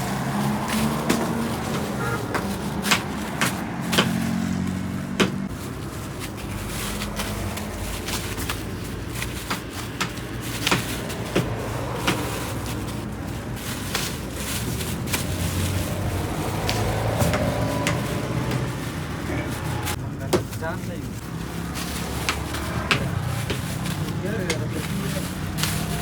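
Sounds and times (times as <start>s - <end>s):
sharp knocks and clacks: 0.0s - 5.5s.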